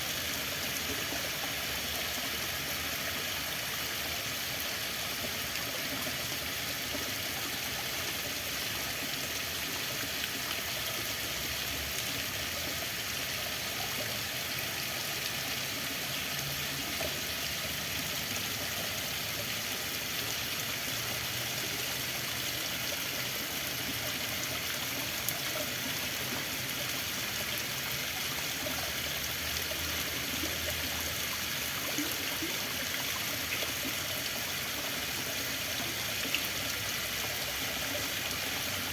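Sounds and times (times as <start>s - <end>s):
water flowing: 0.0s - 38.9s.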